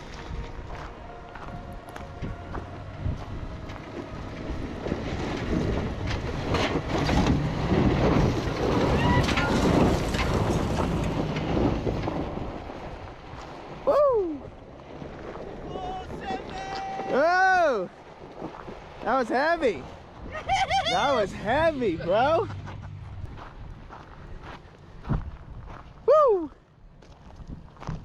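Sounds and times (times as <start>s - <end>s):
wind on microphone: 0.0s - 17.4s
truck engine revving hard: 2.4s - 12.5s
person shouting: 13.9s - 14.5s, 15.7s - 17.8s, 26.1s - 26.6s.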